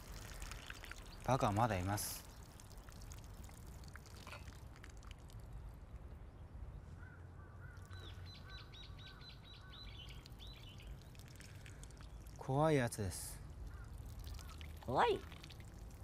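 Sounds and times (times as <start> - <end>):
bird chirping: 6.2 - 12.4.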